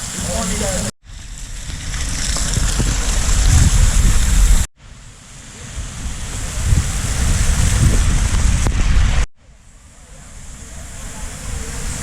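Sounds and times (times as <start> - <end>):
wind buffeting microphone: 0.0 - 4.7, 5.6 - 12.0
waterfall rushing: 5.1 - 12.0.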